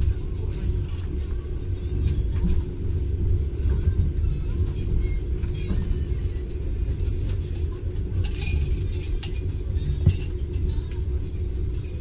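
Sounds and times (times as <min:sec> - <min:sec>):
train carriage low rumble: 0:00.0 - 0:12.0
clinking and rattling: 0:08.2 - 0:10.8.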